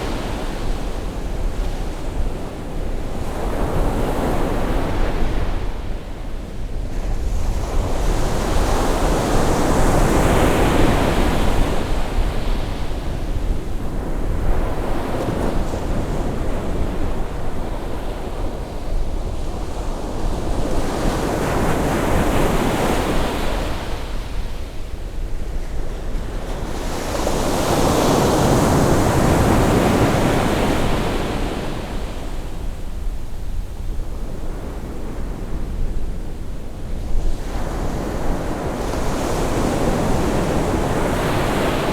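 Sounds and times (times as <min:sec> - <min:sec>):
ocean waves breaking on beach: 0:25.9 - 0:32.9, 0:36.8 - 0:41.9.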